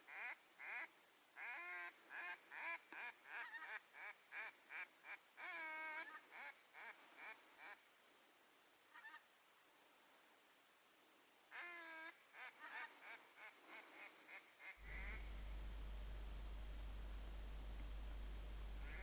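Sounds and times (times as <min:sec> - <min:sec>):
duck quacking: 0:14.8 - 0:19.0.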